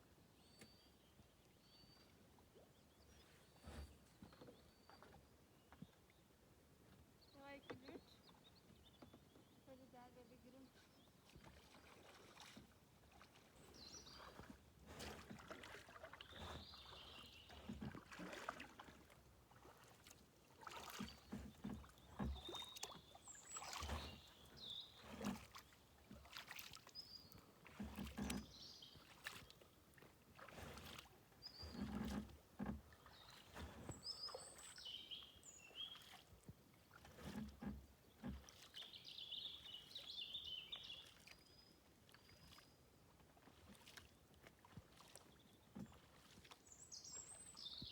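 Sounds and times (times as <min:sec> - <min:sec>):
paddle splashing in water: 0:11.1 - 0:47.9.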